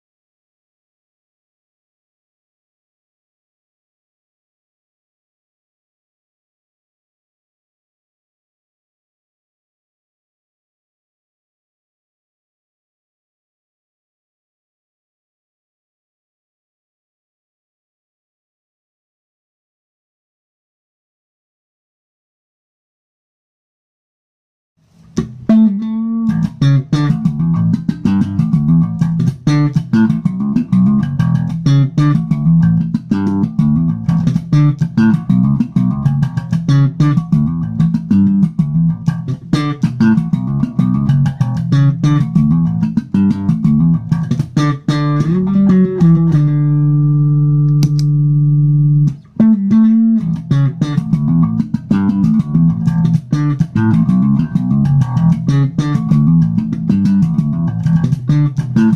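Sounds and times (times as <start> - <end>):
electric bass guitar playing: 25.1 - 58.9.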